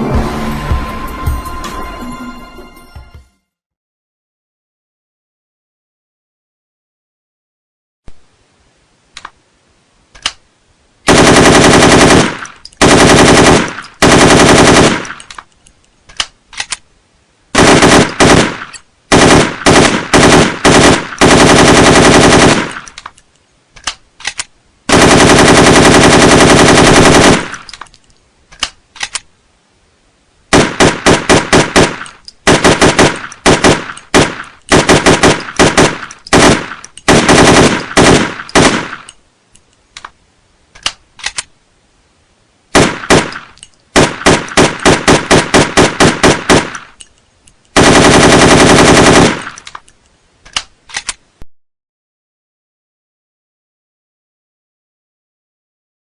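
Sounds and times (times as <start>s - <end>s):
rifle firing automatic bursts: 11.1s - 15.3s, 17.6s - 22.9s, 24.9s - 27.7s, 30.5s - 39.1s, 42.8s - 47.0s, 47.8s - 49.6s.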